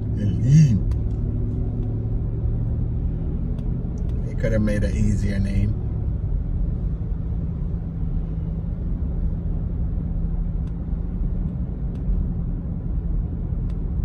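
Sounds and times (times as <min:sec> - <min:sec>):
vehicle driving rumble: 0:00.0 - 0:14.0
faint light ticks: 0:03.5 - 0:04.2, 0:10.6 - 0:10.8, 0:11.4 - 0:12.2, 0:13.6 - 0:13.9.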